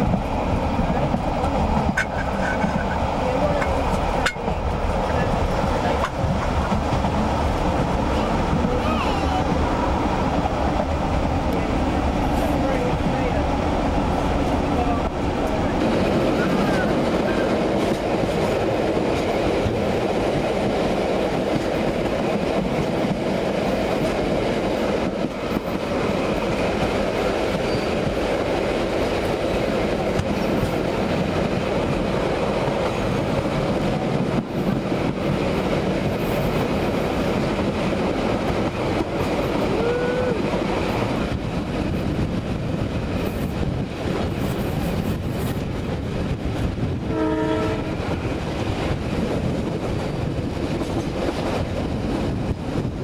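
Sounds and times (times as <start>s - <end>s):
train wheels rumbling on rails: 0.0s - 53.0s
train horn: 47.0s - 48.2s.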